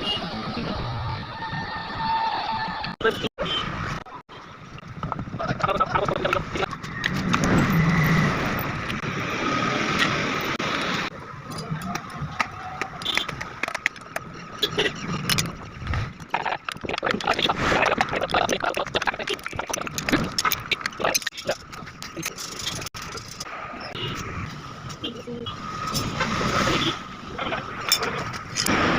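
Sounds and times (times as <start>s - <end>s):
metallic clicks and knocks: 11.5s - 23.5s.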